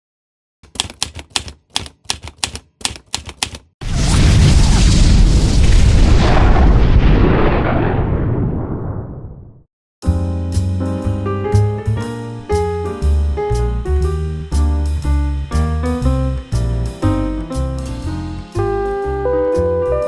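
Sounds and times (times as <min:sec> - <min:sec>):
typewriter-like key clacks: 0:00.6 - 0:03.7
deep rumbling boom: 0:03.8 - 0:09.6.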